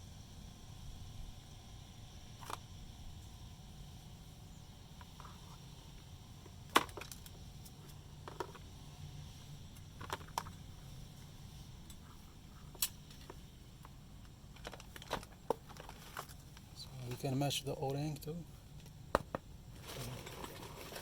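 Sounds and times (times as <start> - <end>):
steady low hum: 0.0 - 21.0
small parts clicking and tapping: 5.0 - 8.7, 9.7 - 10.6, 11.8 - 17.2.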